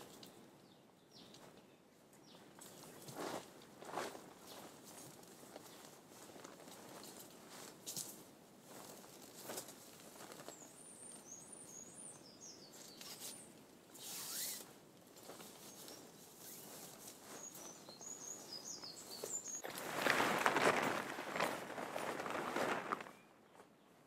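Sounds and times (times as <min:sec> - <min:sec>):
faint background noise: 0:00.0 - 0:24.0
small birds chirping: 0:00.1 - 0:03.4, 0:10.2 - 0:14.6, 0:15.2 - 0:19.7.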